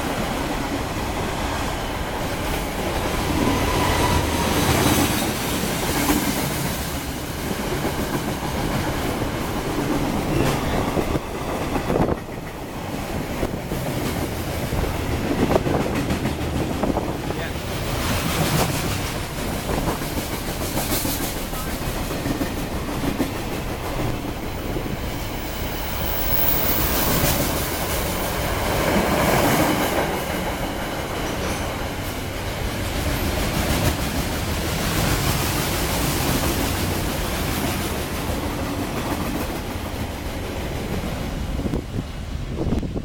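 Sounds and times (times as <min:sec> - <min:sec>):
train wheels clicking on rails: 0:00.0 - 0:43.0.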